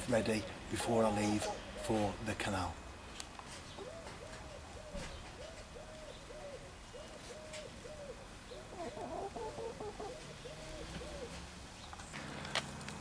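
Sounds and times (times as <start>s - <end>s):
bird cooing softly: 0.1s - 2.2s, 3.7s - 11.5s.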